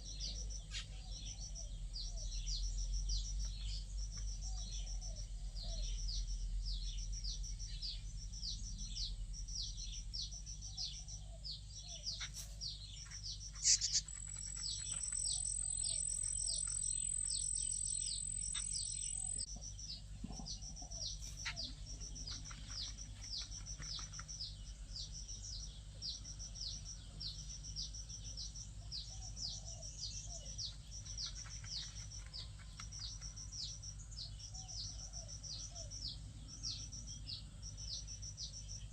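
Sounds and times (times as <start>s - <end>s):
bird chirping: 0.0s - 38.9s.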